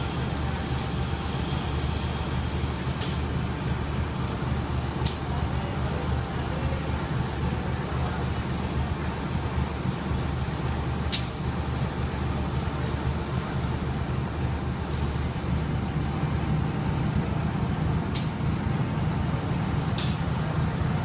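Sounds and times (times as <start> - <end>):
diesel train engine humming: 0.0 - 21.0
air release hisses: 14.9 - 15.6.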